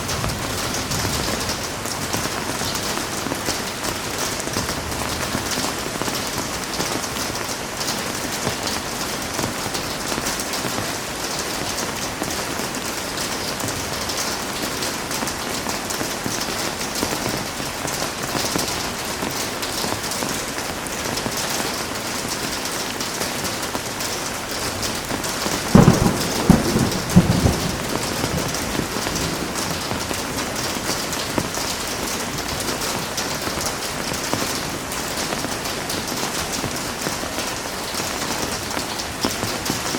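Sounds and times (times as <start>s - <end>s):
heavy rain: 0.0s - 39.9s
thunderclap: 25.0s - 31.6s.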